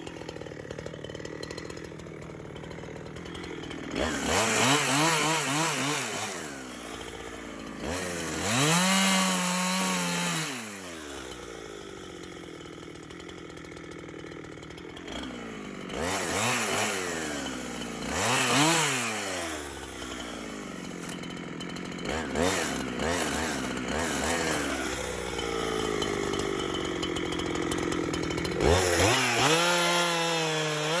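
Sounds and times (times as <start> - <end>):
chainsaw revving: 0.0 - 31.0.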